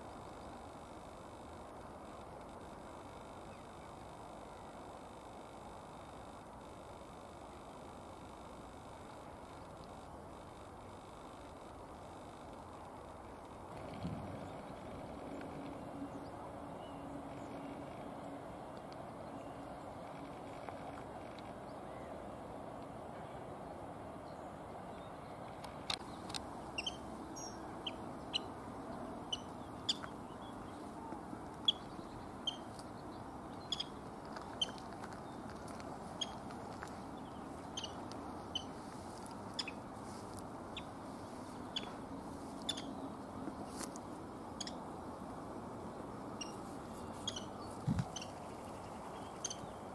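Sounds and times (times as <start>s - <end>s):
small bird call notes: 26.1s - 28.6s, 31.6s - 35.4s, 37.2s - 38.8s, 39.6s - 39.8s, 41.6s - 42.0s, 42.6s - 43.1s, 46.3s - 49.9s.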